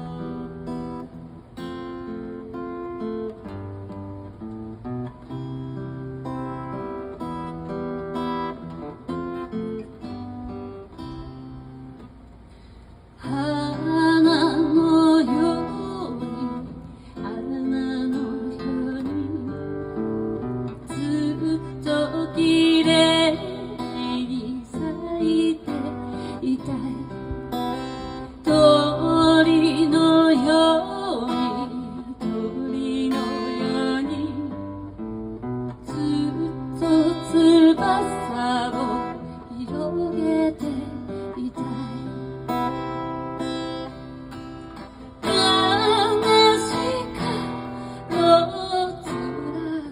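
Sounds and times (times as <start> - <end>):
acoustic guitar chords: 0.0 - 49.9
person singing slow song: 12.7 - 49.9.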